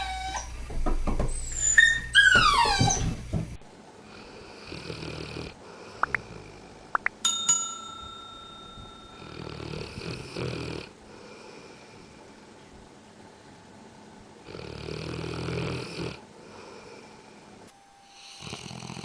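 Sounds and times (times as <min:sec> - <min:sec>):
short rising squeaks: 0:00.0 - 0:03.2
dog snoring: 0:04.0 - 0:06.7, 0:09.4 - 0:11.6, 0:14.4 - 0:17.0, 0:18.1 - 0:19.0
metallic ding: 0:07.2 - 0:09.6.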